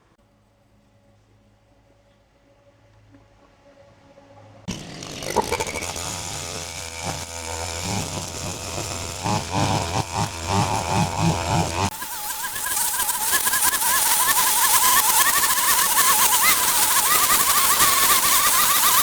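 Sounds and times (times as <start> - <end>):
small engine power tool revving: 4.7 - 19.0.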